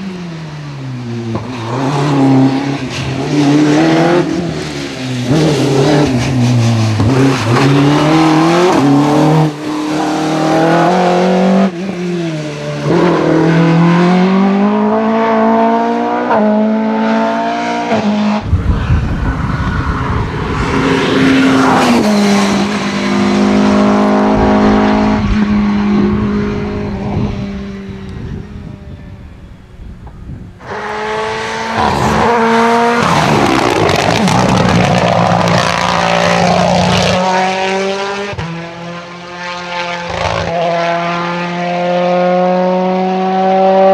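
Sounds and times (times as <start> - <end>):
rally car engine revving: 0.0 - 43.9
deep rumble: 18.4 - 22.6.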